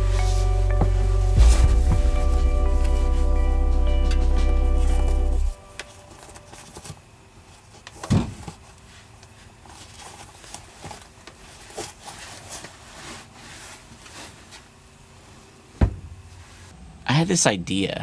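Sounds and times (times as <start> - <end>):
loud thump: 1.4 - 3.2.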